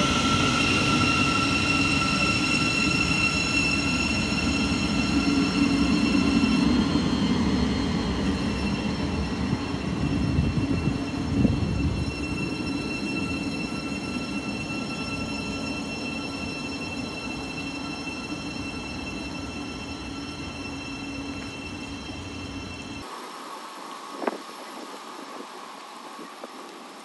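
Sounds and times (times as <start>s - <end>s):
steady high tones: 0.0s - 23.1s
train rumble: 0.0s - 23.2s.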